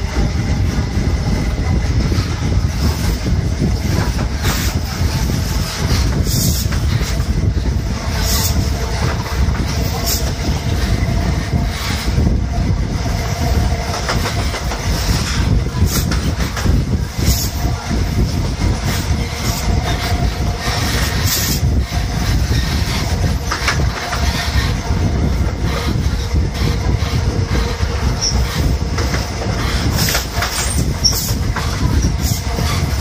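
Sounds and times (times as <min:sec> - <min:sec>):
train wheels rumbling on rails: 0:00.0 - 0:33.0
wind rushing over microphone: 0:00.0 - 0:33.0.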